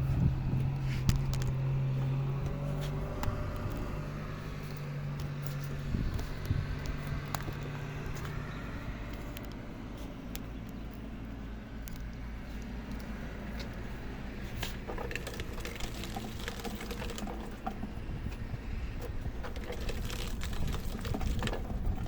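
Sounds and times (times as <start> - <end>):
small clicks: 4.6 - 8.5.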